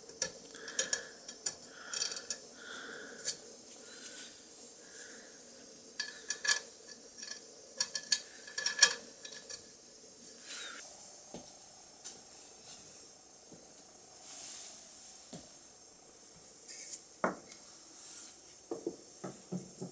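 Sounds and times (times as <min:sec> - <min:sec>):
small metal parts clinking: 0:00.1 - 0:02.4, 0:06.0 - 0:09.8.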